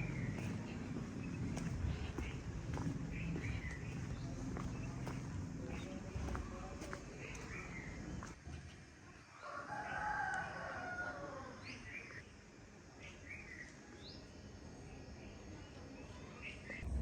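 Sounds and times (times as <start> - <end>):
small birds chirping: 0.0 - 8.4
rooster crowing: 9.4 - 11.6.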